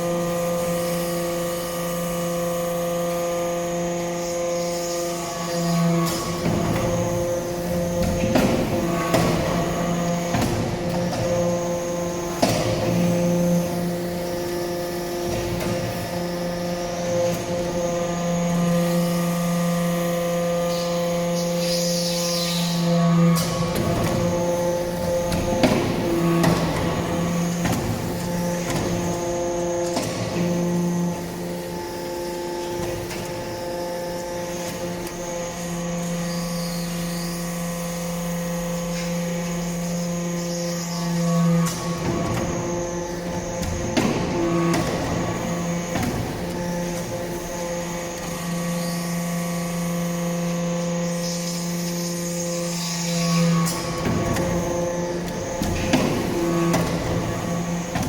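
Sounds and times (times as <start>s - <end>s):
hydraulic press humming: 0.0s - 58.0s.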